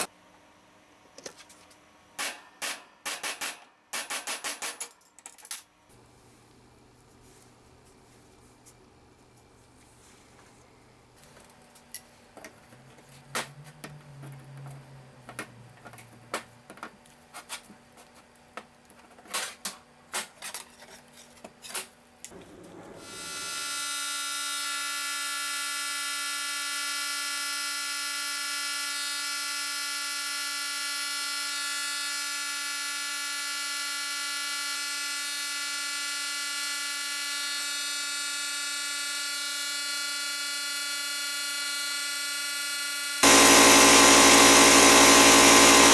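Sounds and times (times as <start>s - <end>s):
electric power tool whining: 33.6s - 45.9s.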